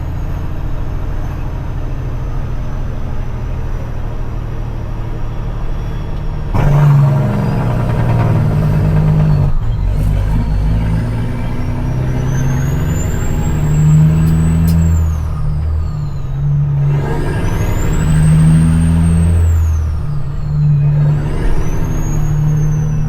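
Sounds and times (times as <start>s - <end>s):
diesel truck engine under load: 0.0s - 23.0s
turbo whistle: 5.7s - 23.0s.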